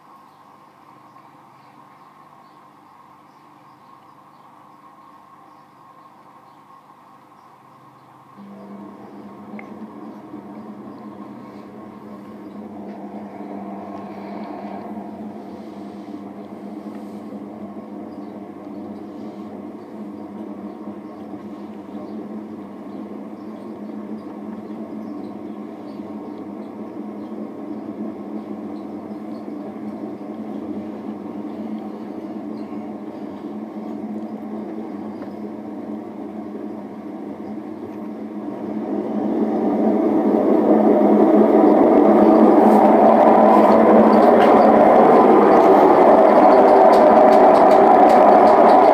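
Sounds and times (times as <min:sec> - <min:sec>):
washing machine drum spinning: 0:17.5 - 0:48.9.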